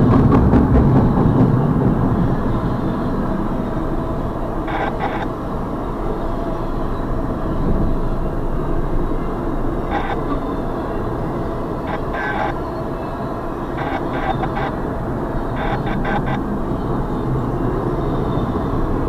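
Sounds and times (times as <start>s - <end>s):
train wheel clacks: 0.0s - 3.6s
freight train wheels rumbling: 0.0s - 19.0s.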